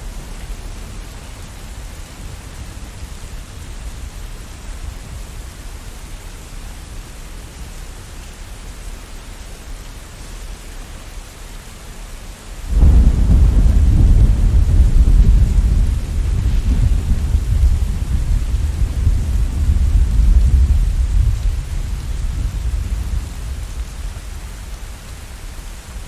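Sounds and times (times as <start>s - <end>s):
steady rain hissing: 0.0s - 26.0s
thunder rumbling: 12.7s - 25.3s.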